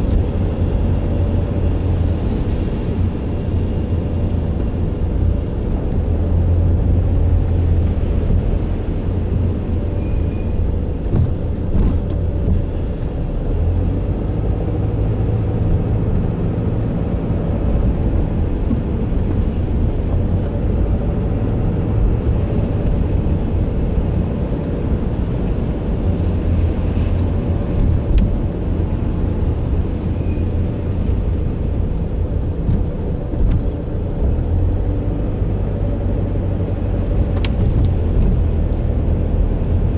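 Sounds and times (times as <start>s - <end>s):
motor vehicle rumble: 0.0s - 39.9s.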